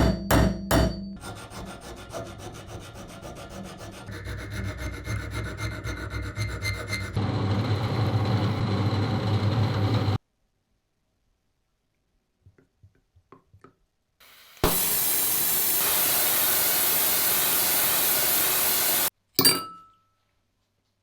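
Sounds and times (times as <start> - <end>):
loud hiss from workshop tool: 14.2 - 19.1
metallic clink: 19.4 - 20.2.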